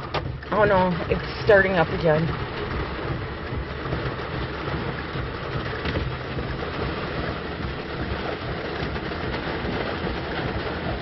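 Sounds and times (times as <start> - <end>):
heavy rain on car roof: 0.0 - 11.0.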